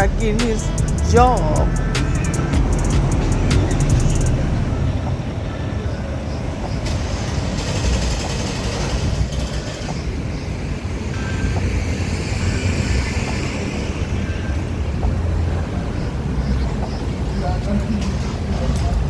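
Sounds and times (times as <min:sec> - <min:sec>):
low vehicle rumble: 0:00.0 - 0:19.0
hiss: 0:11.0 - 0:14.4.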